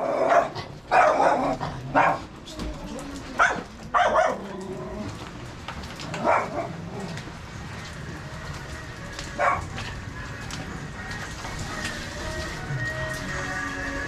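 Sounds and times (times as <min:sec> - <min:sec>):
dog barking: 0:00.0 - 0:02.3, 0:03.4 - 0:04.6, 0:06.1 - 0:07.0, 0:09.4 - 0:09.8
rain hiss: 0:04.4 - 0:14.0.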